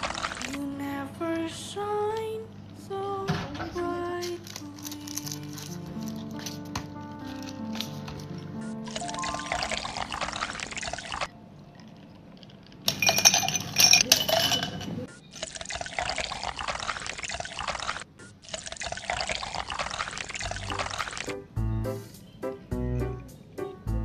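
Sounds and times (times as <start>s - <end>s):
liquid pouring into a glass: 8.9s - 14.1s, 15.4s - 21.3s
glass clinking: 12.9s - 15.1s.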